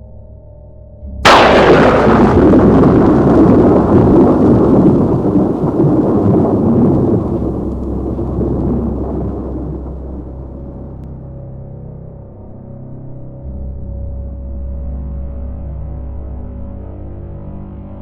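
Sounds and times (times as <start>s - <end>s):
low steady drone: 0.0s - 18.0s
thunder-like boom: 1.2s - 11.1s.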